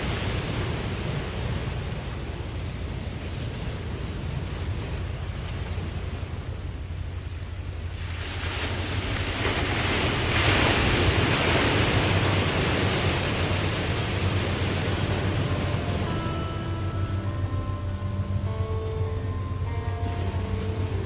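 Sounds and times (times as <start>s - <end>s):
waterfall rushing: 10.2s - 21.0s.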